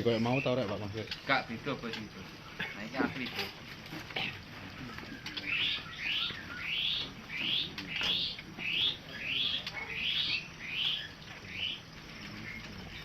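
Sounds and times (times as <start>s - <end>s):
songbird calling rising notes: 4.8s - 13.0s.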